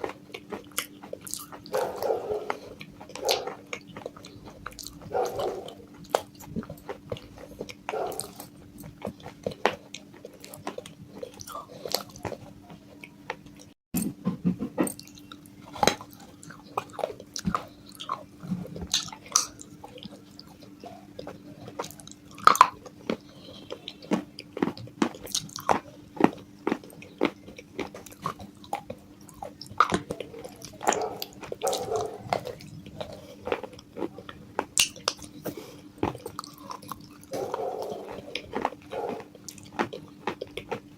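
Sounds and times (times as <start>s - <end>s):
faint steady hum: 0.0s - 40.9s
person chewing crunchy clay: 0.0s - 40.9s.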